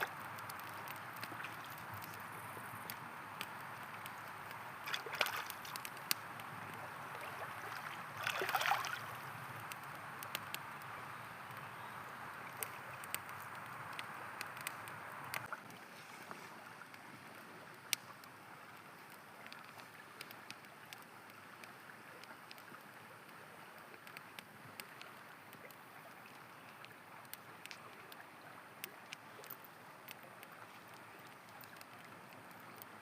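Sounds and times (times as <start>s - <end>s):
campfire crackling and popping: 0.0s - 33.0s
flowing river rushing: 2.8s - 9.2s.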